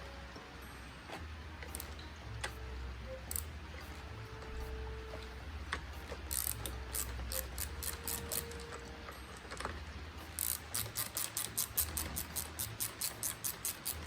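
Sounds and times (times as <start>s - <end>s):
ratchet wrench clicking: 6.3s - 8.6s, 10.3s - 14.0s.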